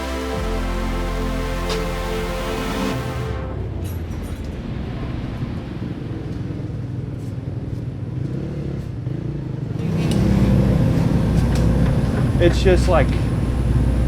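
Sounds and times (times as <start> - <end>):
motor vehicle rumbling: 3.2 - 14.0.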